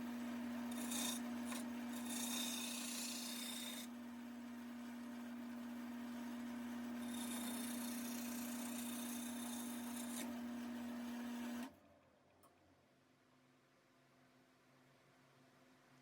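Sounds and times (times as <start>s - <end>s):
tool rubbing spinning wood: 0.0s - 3.9s, 6.7s - 10.4s
wood lathe motor hum: 0.0s - 11.7s.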